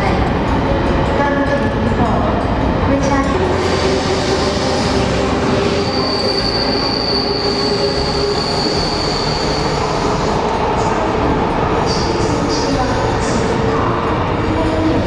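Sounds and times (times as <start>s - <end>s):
train rumbling on rails: 0.0s - 15.0s
high wheel squeal: 3.5s - 10.6s.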